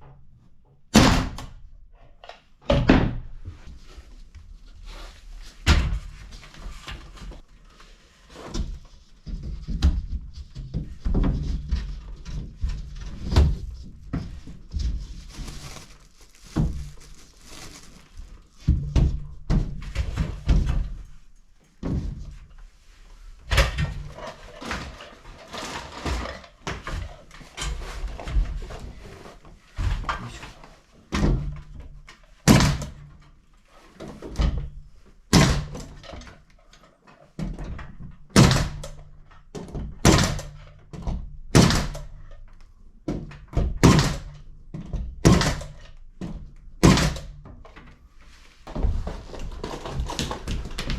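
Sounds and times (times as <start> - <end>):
renovation thumps and knocks: 2.3 - 3.9, 5.5 - 7.4, 8.4 - 21.2, 21.8 - 22.5, 23.5 - 33.2, 43.0 - 50.9.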